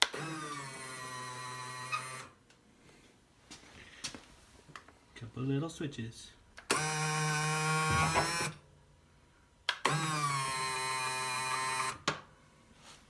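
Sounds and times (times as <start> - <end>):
small electric motor whining: 0.1 - 2.4, 9.9 - 12.0.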